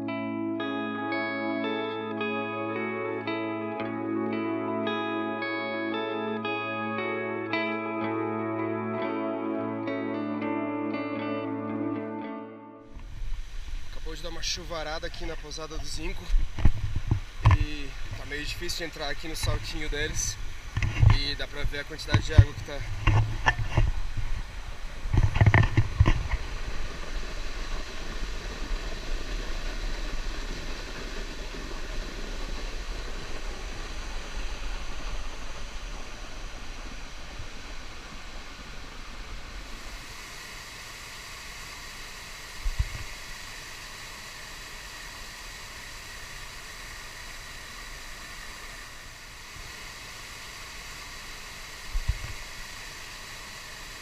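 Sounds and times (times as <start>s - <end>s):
waterfall rushing: 23.9s - 54.0s.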